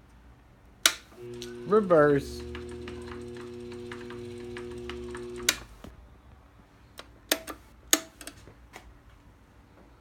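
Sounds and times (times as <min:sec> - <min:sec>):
loud switch click: 0:00.8 - 0:01.1
mechanical clicks and clunks: 0:00.8 - 0:05.9
lathe motor humming: 0:01.2 - 0:05.8.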